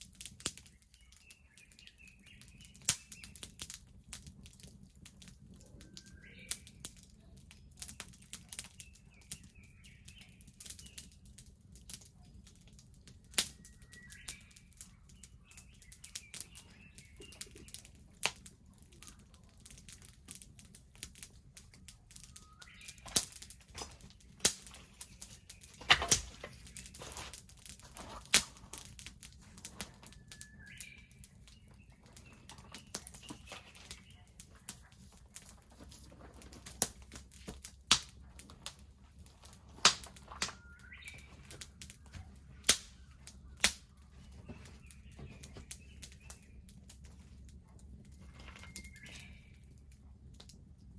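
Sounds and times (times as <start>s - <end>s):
fire popping sharply: 0.0s - 50.7s
bonfire crackling: 0.0s - 50.9s
bird chirping: 0.6s - 3.5s, 5.6s - 11.3s, 13.5s - 19.2s, 21.7s - 35.6s, 39.3s - 47.2s, 48.0s - 49.8s.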